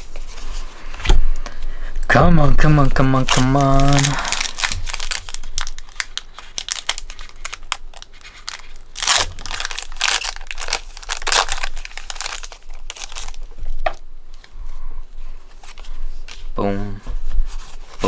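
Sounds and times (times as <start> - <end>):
foil wrapper tearing and crinkling: 2.6 - 13.9.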